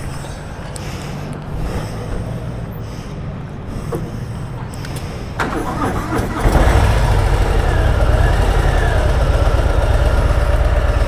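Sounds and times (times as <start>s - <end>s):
motorcycle engine starting and idling: 0.6s - 11.0s.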